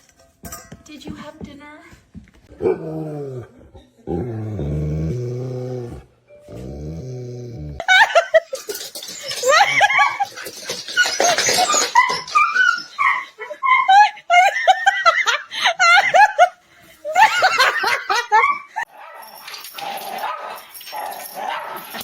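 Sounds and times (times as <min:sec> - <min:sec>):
dog yipping and whining: 0:08.8 - 0:14.0.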